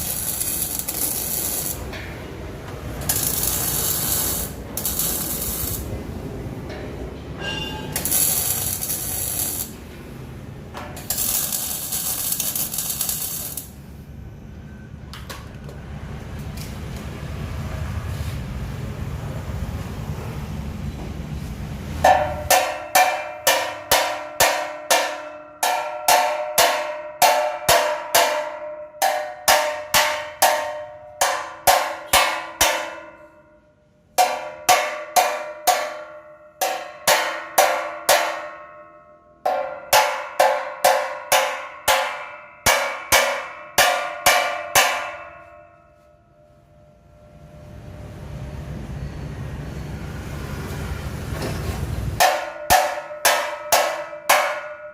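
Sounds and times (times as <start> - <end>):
hammer striking steel: 0.0 - 13.8, 22.0 - 47.5, 52.2 - 54.9.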